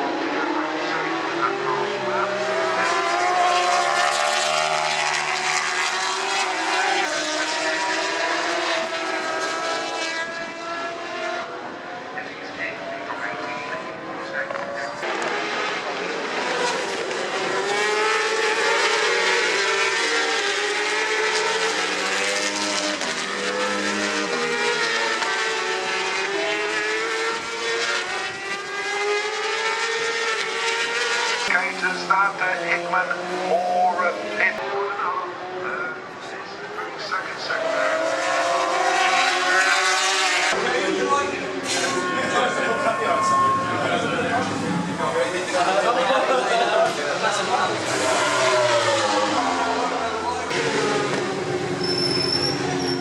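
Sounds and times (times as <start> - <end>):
racing motorcycle engines revving: 0.0 - 53.0.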